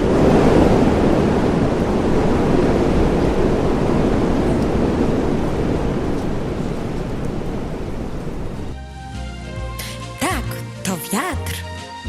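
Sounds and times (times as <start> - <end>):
loud rushing wind: 0.0 - 8.8.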